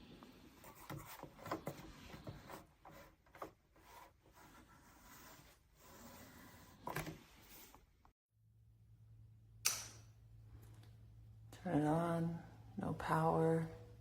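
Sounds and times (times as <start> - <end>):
handling noise rubbing and scraping: 0.1 - 8.0.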